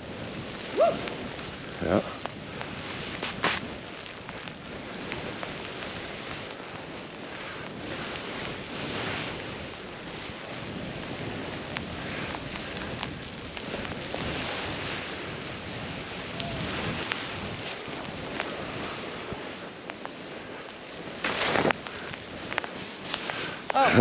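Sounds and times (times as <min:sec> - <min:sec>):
snowboard carving through powder: 0:00.0 - 0:24.0
wind rushing over microphone: 0:00.0 - 0:24.0
light ticks: 0:02.2 - 0:09.0, 0:11.0 - 0:14.8, 0:16.4 - 0:23.8.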